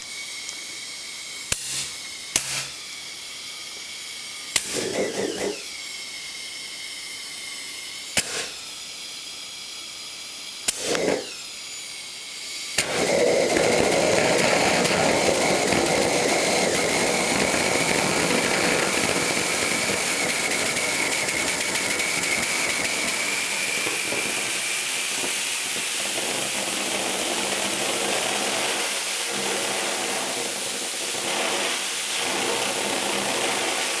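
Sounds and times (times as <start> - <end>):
rocket engine rushing hiss: 0.0 - 34.0
rocket engine sputtering: 1.3 - 3.3, 4.4 - 6.0, 8.0 - 9.1, 10.0 - 34.0
sharp clicks: 1.5 - 2.8.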